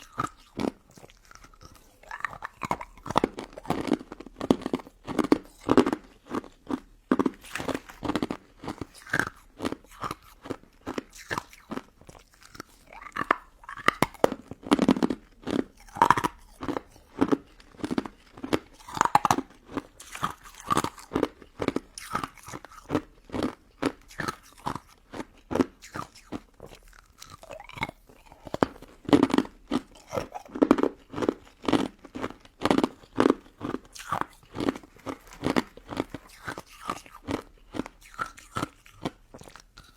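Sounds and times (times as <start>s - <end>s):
crunchy biting and chewing: 0.0s - 39.9s.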